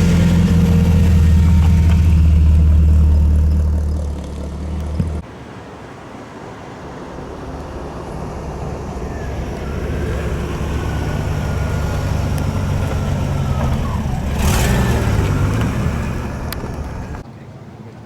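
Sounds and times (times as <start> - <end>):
car driving past: 0.0 - 17.2.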